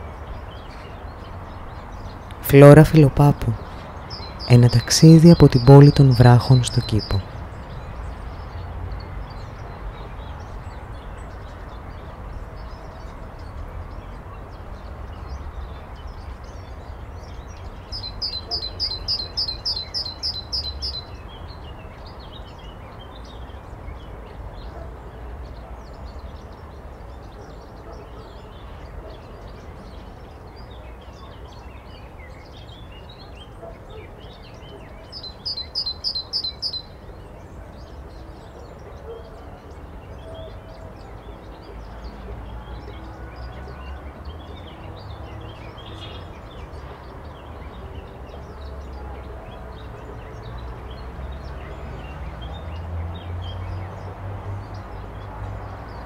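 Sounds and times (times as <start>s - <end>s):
songbird singing high notes: 2.3s - 7.3s.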